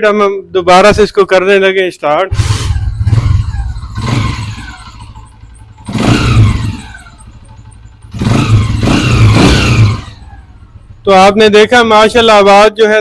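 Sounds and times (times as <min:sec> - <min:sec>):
motorcycle engine revving: 0:02.3 - 0:11.0.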